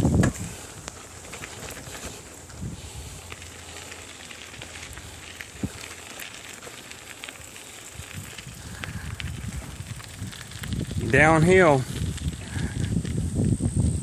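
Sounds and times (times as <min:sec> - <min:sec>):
bicycle tyres rolling on trail: 0:00.0 - 0:14.0
crackles and clicks: 0:00.0 - 0:14.0.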